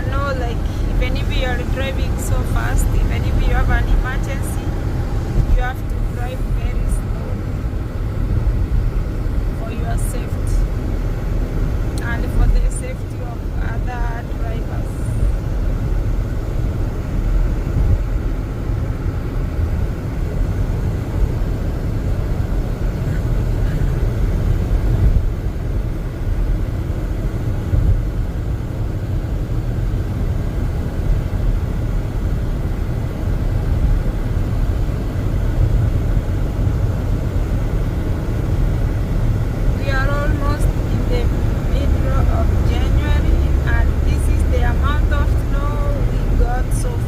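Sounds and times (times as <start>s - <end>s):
car driving on snowy road: 0.0s - 47.0s.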